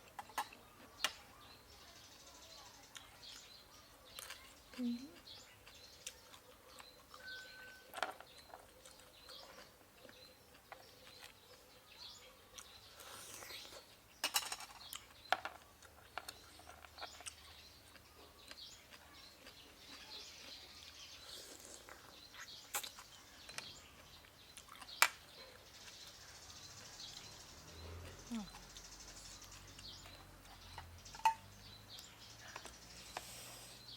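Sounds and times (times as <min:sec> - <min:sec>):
person chewing and crunching: 0:04.1 - 0:11.6, 0:14.9 - 0:25.2.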